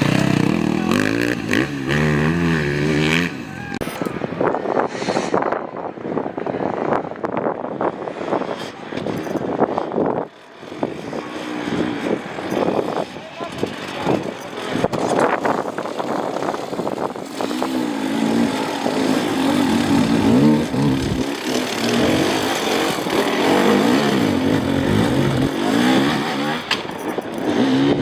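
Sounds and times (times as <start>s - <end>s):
dirt bike engine revving: 0.0s - 4.1s, 10.4s - 28.0s.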